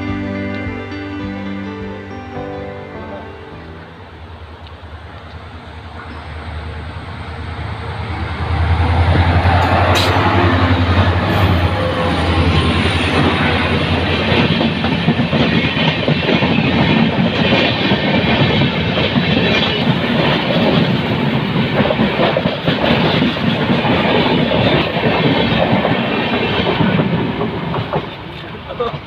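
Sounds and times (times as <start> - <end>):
train wheels clattering over rails: 8.4 - 29.0.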